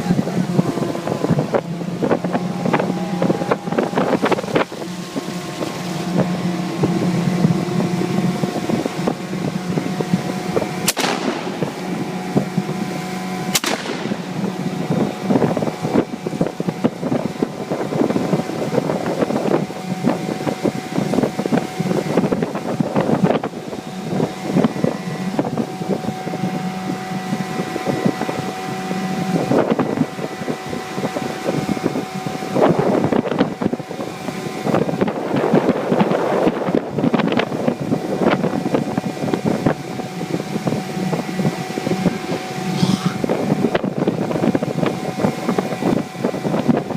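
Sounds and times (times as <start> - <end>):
outboard motor running: 0.0 - 46.9
wind on microphone: 0.0 - 46.9
shotgun shots: 10.9 - 11.9, 13.5 - 14.4.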